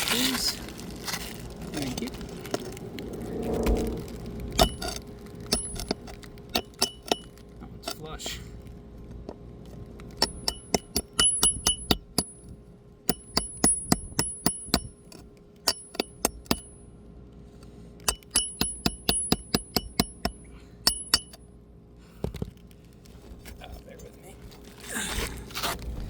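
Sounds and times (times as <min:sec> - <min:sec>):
hammer tapping steel bar: 0:05.5 - 0:07.3, 0:10.2 - 0:16.7, 0:18.1 - 0:21.4.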